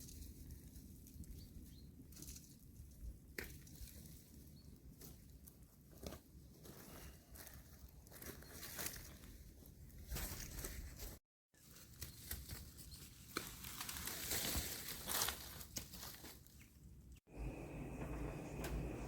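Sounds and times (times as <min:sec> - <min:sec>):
rustling and tearing: 0:10.1 - 0:16.6.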